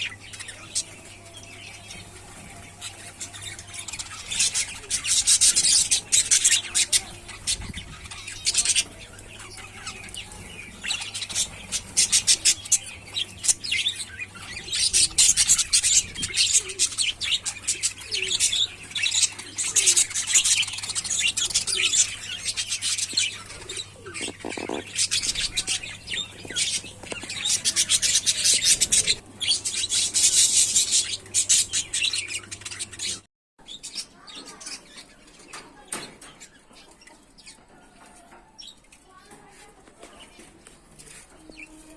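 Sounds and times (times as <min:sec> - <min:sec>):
budgerigars chattering: 0:03.5 - 0:33.2.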